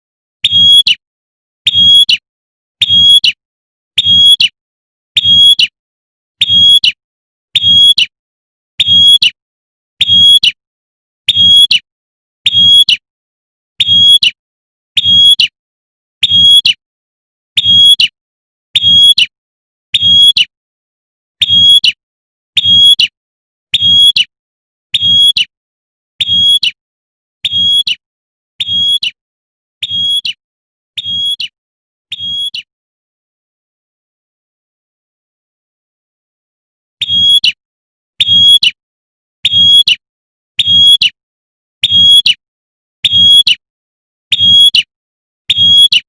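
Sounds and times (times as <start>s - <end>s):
bird giving sharp high calls: 26.2s - 26.8s, 27.4s - 28.0s, 28.6s - 29.2s, 29.8s - 30.4s, 31.0s - 31.5s, 32.1s - 32.7s.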